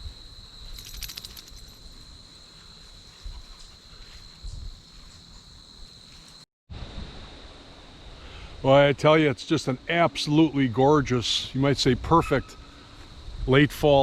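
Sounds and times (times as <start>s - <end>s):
insects trilling: 0.0s - 6.4s.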